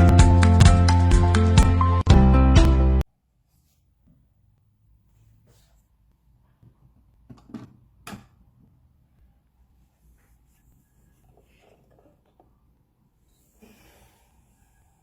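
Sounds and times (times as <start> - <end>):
objects knocking and clattering: 7.3 - 8.4.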